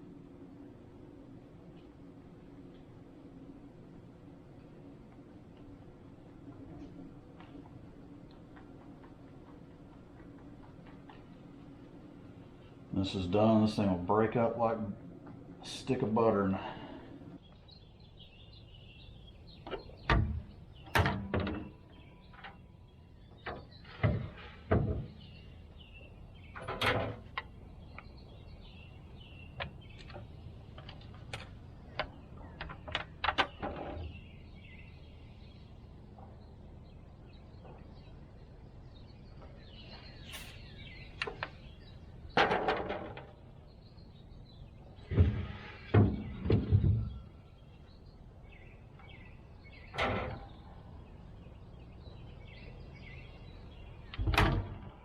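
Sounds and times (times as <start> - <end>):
birds chirping: 0.0 - 55.0
knocks and clunks: 19.6 - 22.6, 23.3 - 25.4, 42.3 - 43.4, 45.0 - 47.4, 54.0 - 55.0.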